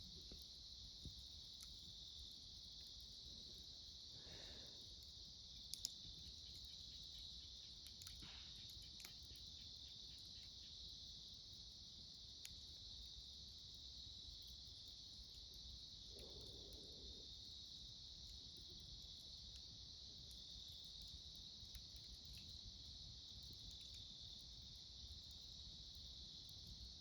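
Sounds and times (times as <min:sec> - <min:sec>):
campfire crackles: 0:00.0 - 0:27.0
crickets chirping: 0:00.0 - 0:27.0.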